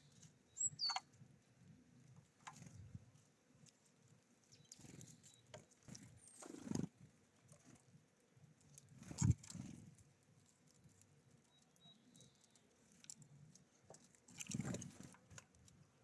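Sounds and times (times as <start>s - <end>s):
short high bird chirp: 0.5s - 1.0s
birds pecking and tapping: 2.0s - 15.8s.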